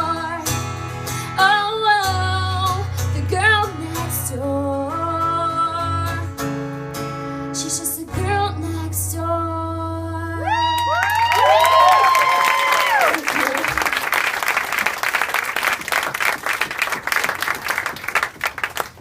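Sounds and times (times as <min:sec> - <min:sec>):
acoustic guitar strumming: 0:00.0 - 0:10.2.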